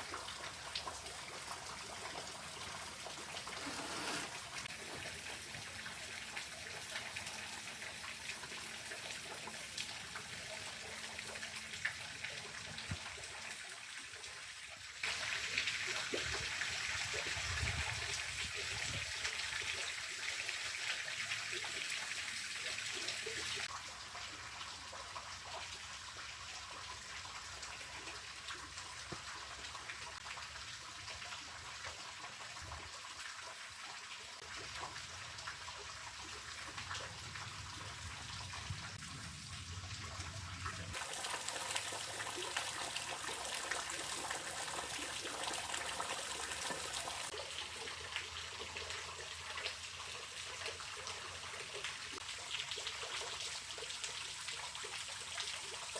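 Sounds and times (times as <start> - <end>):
running water rushing: 0.0 - 13.3, 36.1 - 55.9.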